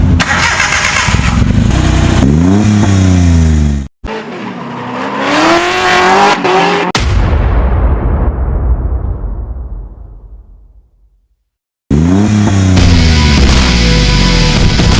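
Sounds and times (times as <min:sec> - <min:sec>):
truck engine revving: 0:00.2 - 0:07.0, 0:11.9 - 0:14.9.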